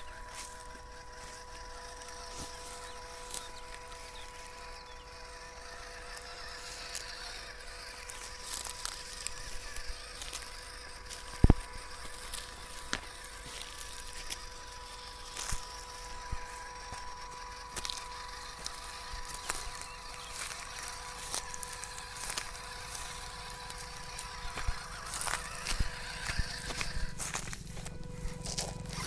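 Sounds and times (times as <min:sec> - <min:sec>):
toy truck motor hum: 0:00.0 - 0:29.0.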